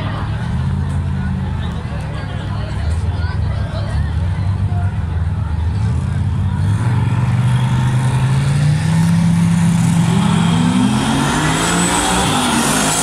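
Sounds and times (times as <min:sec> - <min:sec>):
car engine accelerating hard: 0:04.6 - 0:13.0.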